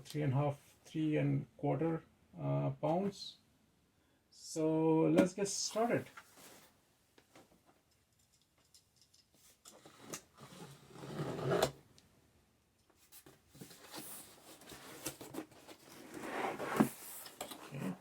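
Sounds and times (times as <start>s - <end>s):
cardboard box scraping and sliding: 9.9s - 11.8s, 13.6s - 18.0s
cardboard rustling and handling: 13.0s - 18.0s.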